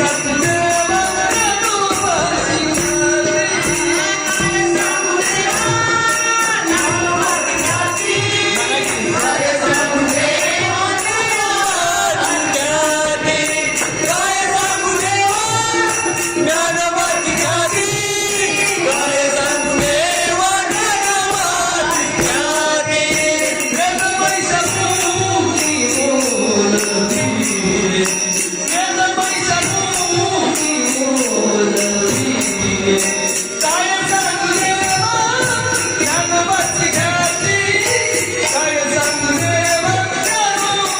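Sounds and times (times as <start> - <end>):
jingling percussion: 0.0 - 40.9
person singing devotional song: 0.0 - 40.9.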